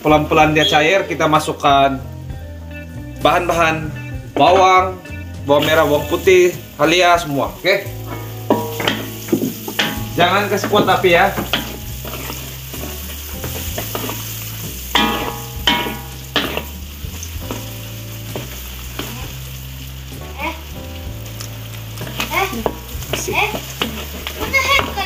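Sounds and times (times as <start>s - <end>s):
food sizzling in a wok: 0.0s - 25.0s
spatula stirring: 5.6s - 25.0s.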